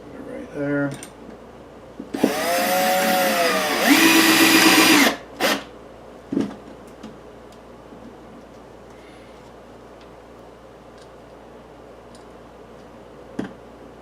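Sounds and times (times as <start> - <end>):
power drill whining: 2.2 - 5.7.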